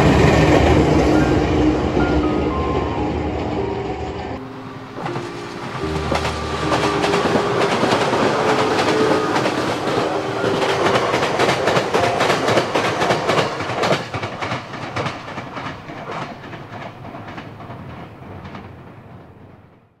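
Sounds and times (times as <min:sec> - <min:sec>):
electric train passing: 0:00.0 - 0:19.9
train wheels clacking on rail joints: 0:04.4 - 0:19.8.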